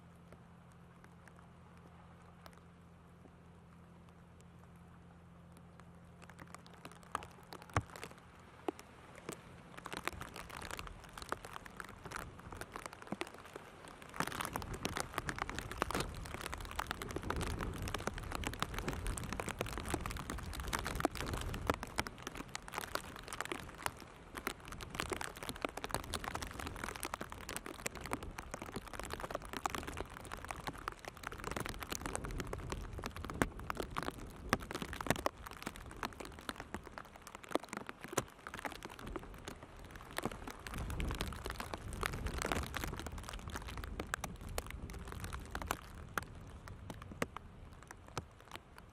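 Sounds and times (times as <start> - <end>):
rain pattering: 0.0 - 48.9
wind buffeting: 13.9 - 36.7.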